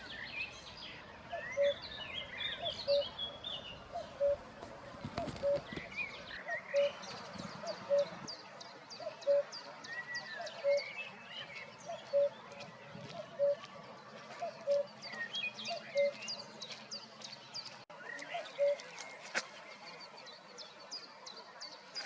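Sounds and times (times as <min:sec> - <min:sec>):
cuckoo calling: 0:00.0 - 0:08.3, 0:09.0 - 0:13.6, 0:14.4 - 0:16.2, 0:18.0 - 0:19.4
songbirds chirping: 0:00.0 - 0:22.0.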